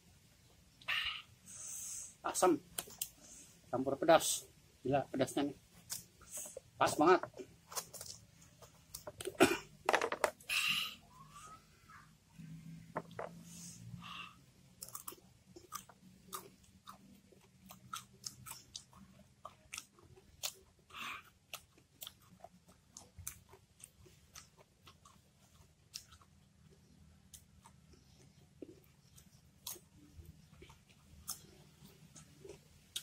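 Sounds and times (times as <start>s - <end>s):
crisp crunching while chewing: 7.6s - 9.4s.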